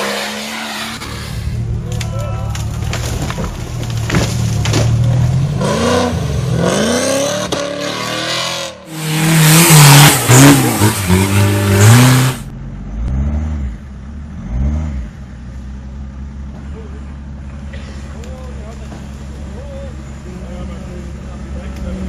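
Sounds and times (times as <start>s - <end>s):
off-road vehicle engine revving: 2.6s - 22.0s
harsh rushing noise: 8.9s - 12.5s.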